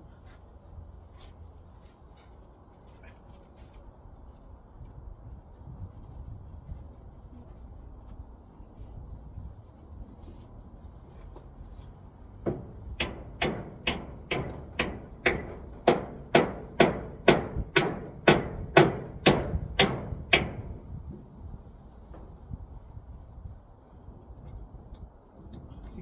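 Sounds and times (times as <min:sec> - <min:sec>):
hammer blows: 0:12.5 - 0:21.1.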